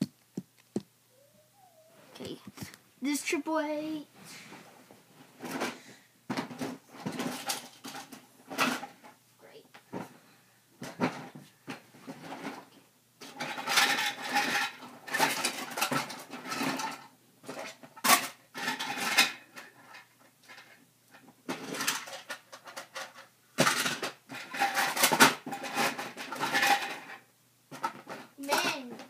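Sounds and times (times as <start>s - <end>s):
plastic toys clattering: 5.4s - 9.1s, 10.8s - 29.0s.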